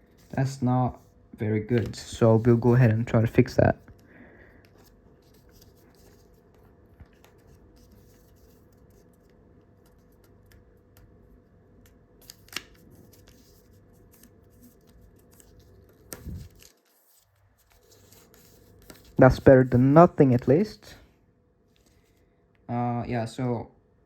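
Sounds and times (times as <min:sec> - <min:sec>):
paper crinkling: 0:01.7 - 0:11.1, 0:12.2 - 0:21.0
sharp paper crackle: 0:04.7 - 0:10.4, 0:12.2 - 0:20.8.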